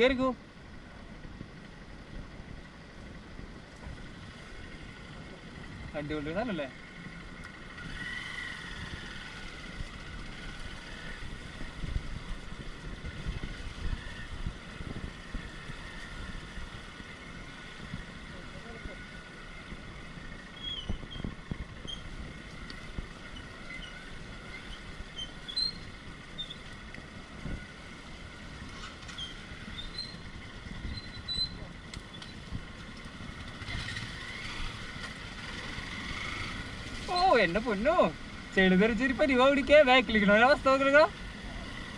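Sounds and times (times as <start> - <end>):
motorcycle engine running: 0.6 - 41.9
wind buffeting microphone: 7.7 - 36.7.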